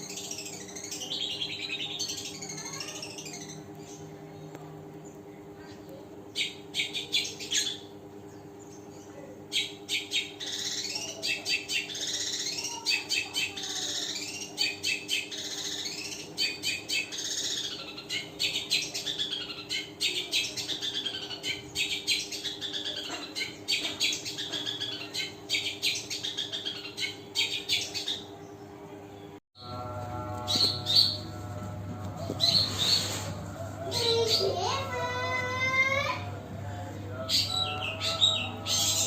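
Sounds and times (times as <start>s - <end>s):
bird chattering song: 0.0s - 29.3s
steady low hum: 0.0s - 39.0s.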